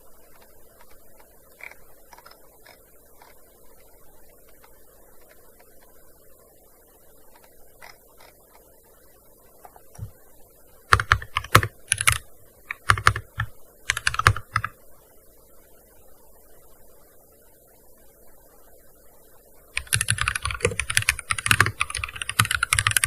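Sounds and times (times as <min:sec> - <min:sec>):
keyboard typing: 0:00.3 - 0:03.4, 0:10.9 - 0:14.8, 0:19.8 - 0:23.0.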